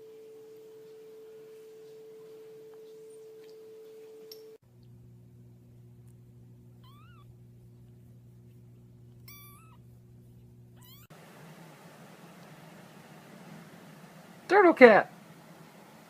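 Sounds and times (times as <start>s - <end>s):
steady low hum: 0.0s - 16.0s
cat chirping: 6.8s - 7.3s, 9.2s - 10.0s, 10.8s - 11.1s
cat meowing: 6.8s - 7.3s, 9.2s - 9.8s, 10.8s - 11.1s
cat trilling: 6.8s - 7.3s, 9.2s - 9.9s, 10.8s - 11.1s.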